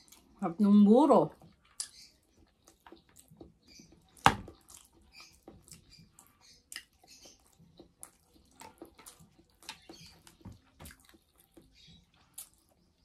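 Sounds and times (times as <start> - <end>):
person chewing: 0.0 - 0.4, 1.4 - 13.0
mouth clicks and smacks: 1.6 - 11.7.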